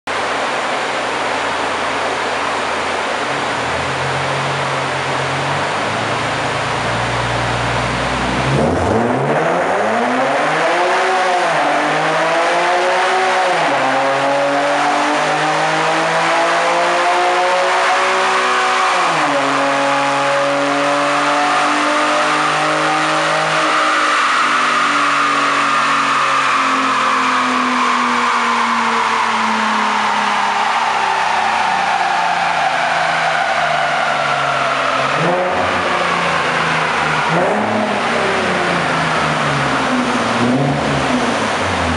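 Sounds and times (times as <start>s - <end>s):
car engine revving: 0.2s - 41.9s
dyno rollers and tyres hissing: 23.3s - 41.9s.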